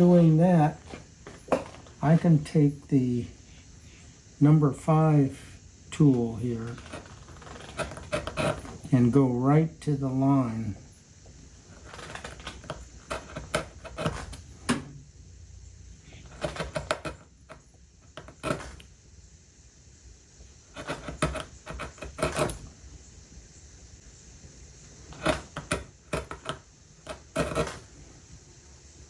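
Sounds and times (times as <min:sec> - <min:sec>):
carving gouge cutting wood: 0:00.0 - 0:02.8, 0:06.0 - 0:09.2, 0:11.6 - 0:14.8, 0:16.2 - 0:18.9, 0:20.7 - 0:22.8, 0:25.0 - 0:28.0.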